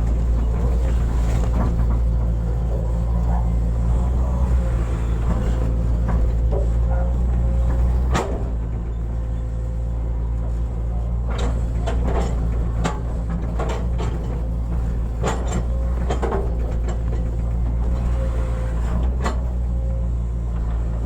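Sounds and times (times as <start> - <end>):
excavator diesel engine running: 0.0 - 21.0
sharp clunks and clanks: 11.2 - 18.2.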